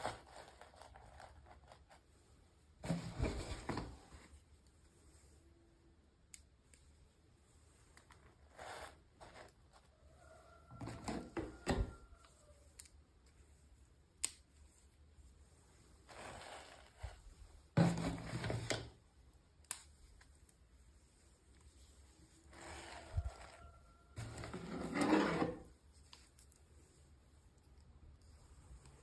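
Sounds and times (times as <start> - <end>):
packaging rustling and scraping: 2.8 - 4.4, 8.0 - 9.9, 10.7 - 12.3, 16.0 - 19.0, 22.4 - 26.6.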